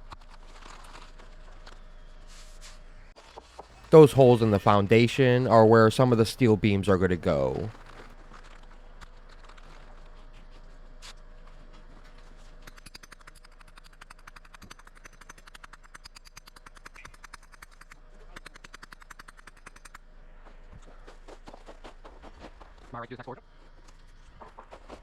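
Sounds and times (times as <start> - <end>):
faint steady hum: 3.7 - 8.1
rapid mechanical clicking: 7.4 - 8.1.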